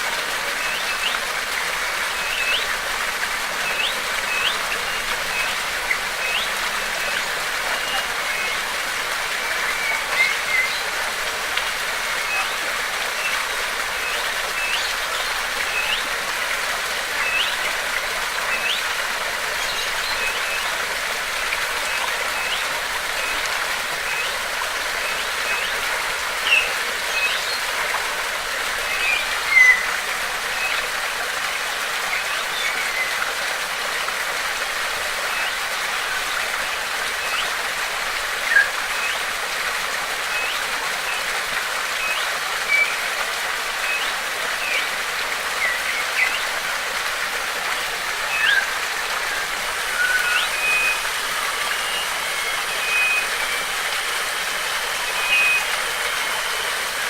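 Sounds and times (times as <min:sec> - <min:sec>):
water rushing: 0:00.0 - 0:57.0
bird chirping: 0:48.3 - 0:48.7.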